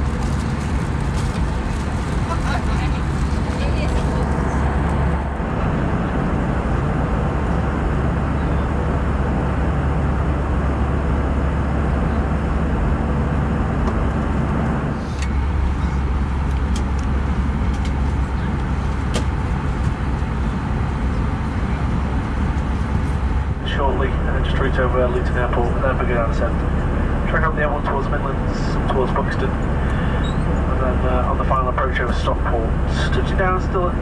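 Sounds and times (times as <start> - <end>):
airplane cabin airflow and engines: 0.0 - 34.0.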